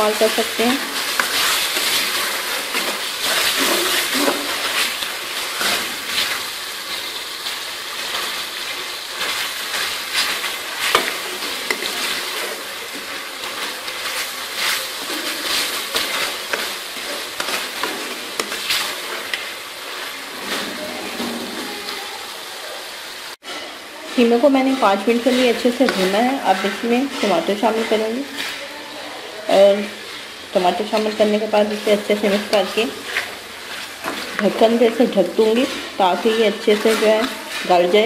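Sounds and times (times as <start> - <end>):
metal ladle scraping pan: 0.0 - 6.4, 23.4 - 28.8, 29.6 - 38.0
meat sizzling in oil: 0.0 - 38.0.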